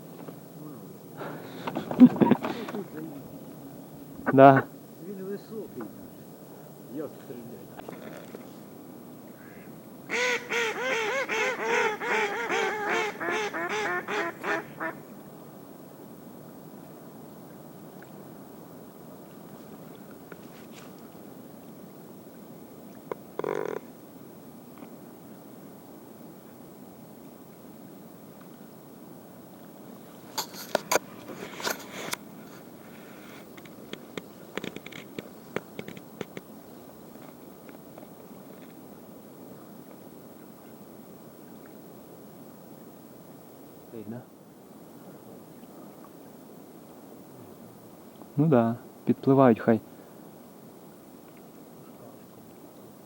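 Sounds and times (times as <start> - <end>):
close rustling: 1.2 - 4.7, 19.4 - 21.1, 30.1 - 38.8
duck quacking: 9.4 - 15.0.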